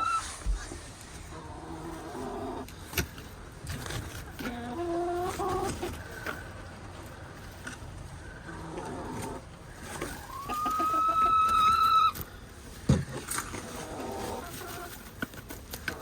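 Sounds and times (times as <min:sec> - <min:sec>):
chickens clucking: 0:00.0 - 0:16.0
chicken long high call: 0:10.2 - 0:12.2.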